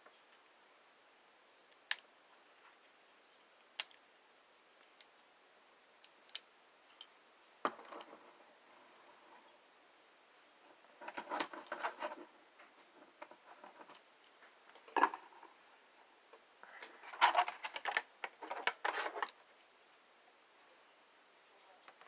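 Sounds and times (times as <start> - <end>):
plastic toy clicking and rattling: 17.0 - 19.3.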